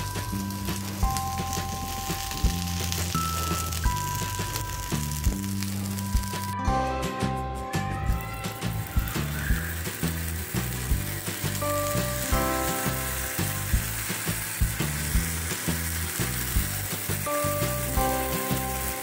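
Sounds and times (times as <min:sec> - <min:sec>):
food sizzling on a hot griddle: 0:00.0 - 0:06.6, 0:08.1 - 0:19.0
background music with a beat: 0:00.0 - 0:19.0.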